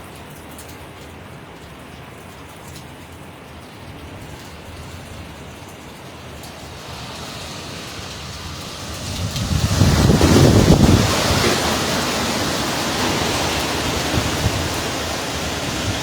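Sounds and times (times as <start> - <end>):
rain: 0.0 - 16.0
hurricane wind: 3.8 - 16.0
wind buffeting microphone: 4.0 - 16.0.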